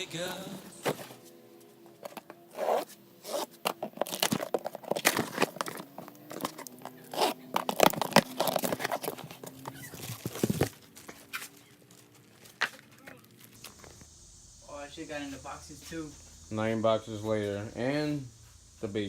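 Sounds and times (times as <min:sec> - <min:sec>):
cardboard tearing and crinkling: 0:02.5 - 0:13.6.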